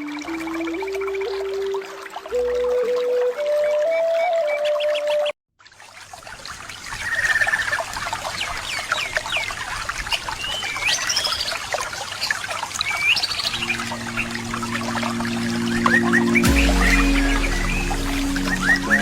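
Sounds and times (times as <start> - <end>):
trickling water: 0.0 - 19.0
birds chirping: 10.2 - 19.0
steady low tones: 13.6 - 19.0.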